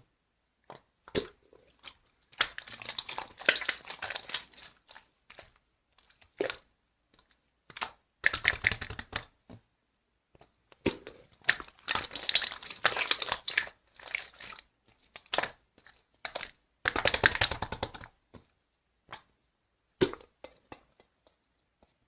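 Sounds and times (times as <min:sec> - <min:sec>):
slime crackling and popping: 0:02.4 - 0:05.5.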